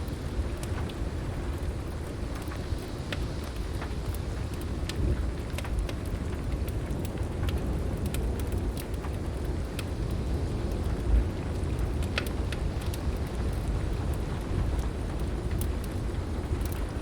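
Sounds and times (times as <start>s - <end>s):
heavy rain: 0.0s - 17.0s
wood fire crackling: 0.0s - 17.0s.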